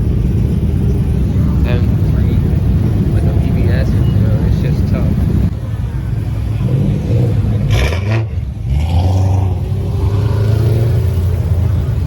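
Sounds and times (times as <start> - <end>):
car engine revving: 6.4 - 12.0.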